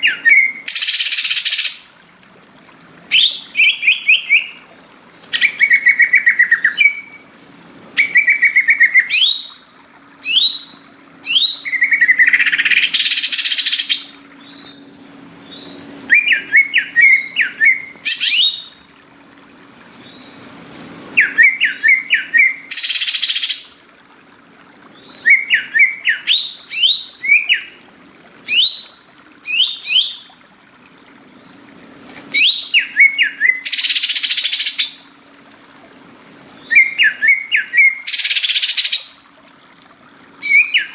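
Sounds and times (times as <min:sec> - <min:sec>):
leafbird whistled song: 0:00.0 - 0:01.9, 0:03.1 - 0:04.7, 0:05.3 - 0:07.3, 0:08.0 - 0:18.9, 0:21.1 - 0:23.7, 0:24.9 - 0:27.8, 0:28.5 - 0:30.3, 0:32.3 - 0:35.0, 0:36.6 - 0:39.2, 0:40.4 - 0:40.9.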